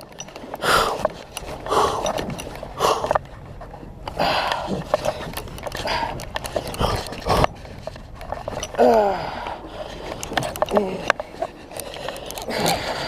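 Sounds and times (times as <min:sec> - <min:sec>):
man breathing hard: 0:00.6 - 0:03.2, 0:04.1 - 0:04.9, 0:08.8 - 0:11.1, 0:11.9 - 0:13.0.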